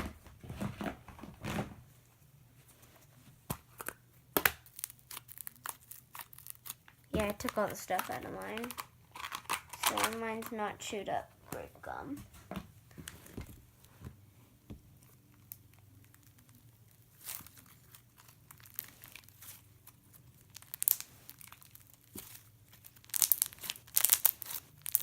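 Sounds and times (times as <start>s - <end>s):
plastic crinkling and rustling: 4.6s - 10.7s, 15.0s - 25.0s.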